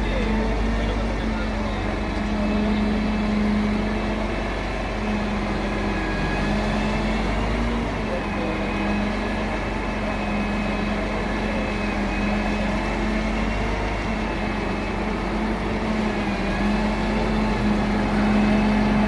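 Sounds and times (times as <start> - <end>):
machinery engine humming: 0.0 - 19.0.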